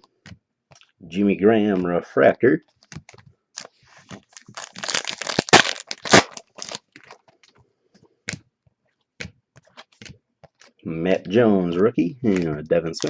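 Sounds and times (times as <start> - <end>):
card packaging crinkling: 2.7 - 7.6, 12.2 - 13.0.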